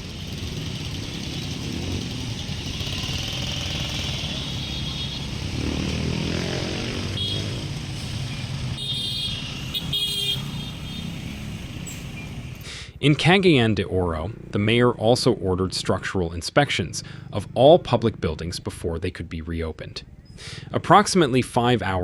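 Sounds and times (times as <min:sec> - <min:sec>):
motorcycle engines running: 0:00.0 - 0:12.6, 0:14.2 - 0:15.8, 0:17.0 - 0:18.3.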